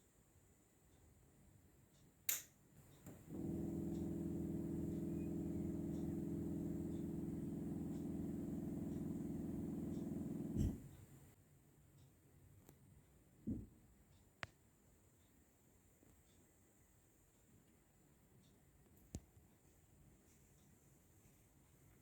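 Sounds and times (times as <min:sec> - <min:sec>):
sharp click: 0:02.3 - 0:03.2
air conditioner low buzz: 0:02.8 - 0:11.4.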